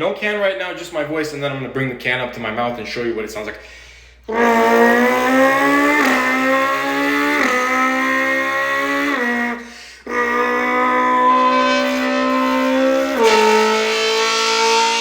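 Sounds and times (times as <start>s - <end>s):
man imitating car exhaust: 4.2s - 15.0s.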